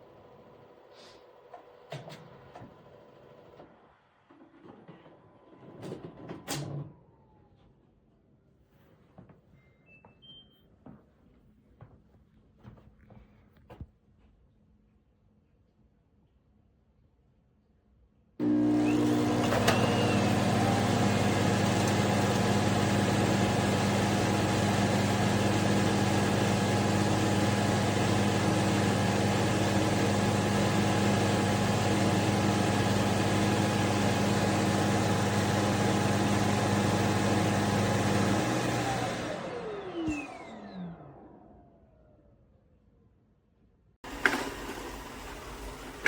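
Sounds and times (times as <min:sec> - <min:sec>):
vacuum motor whirring: 0:18.4 - 0:41.4, 0:44.0 - 0:46.0.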